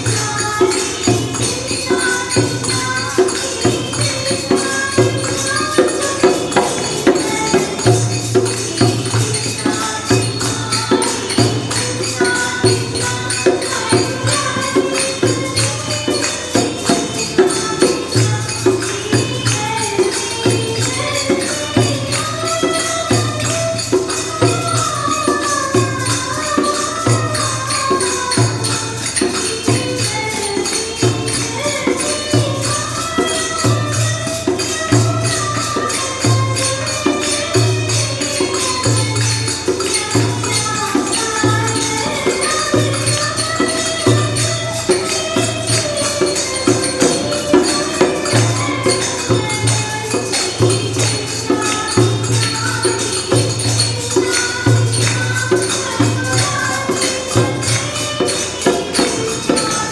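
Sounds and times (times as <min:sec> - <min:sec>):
hand percussion with jingles: 0:00.0 - 0:59.9.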